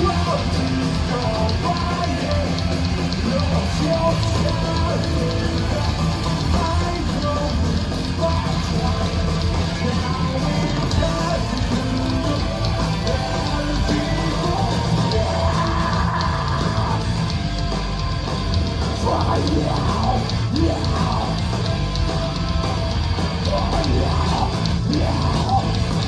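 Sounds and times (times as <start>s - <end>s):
heavy metal band playing: 0.0s - 26.0s
person shouting or singing: 13.1s - 17.2s, 19.0s - 21.5s, 23.4s - 25.8s.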